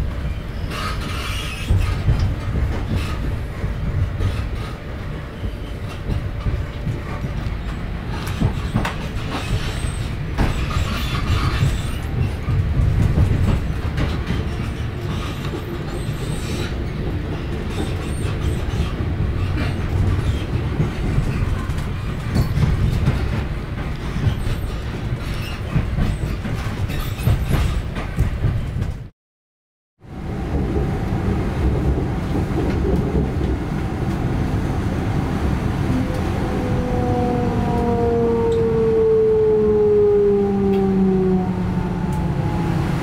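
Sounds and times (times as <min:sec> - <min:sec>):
train low rumble: 0:00.0 - 0:29.1, 0:30.0 - 0:43.0
wheels clicking over rail joints: 0:00.5 - 0:29.1.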